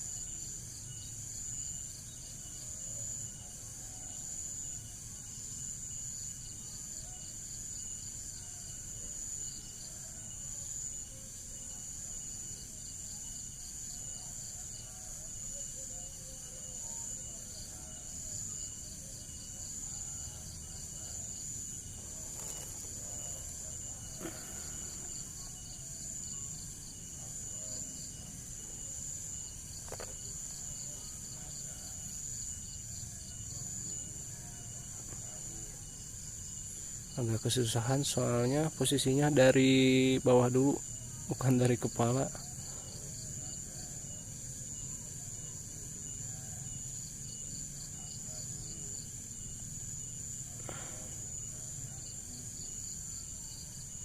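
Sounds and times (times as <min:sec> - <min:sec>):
crickets chirring: 0:00.0 - 0:54.0.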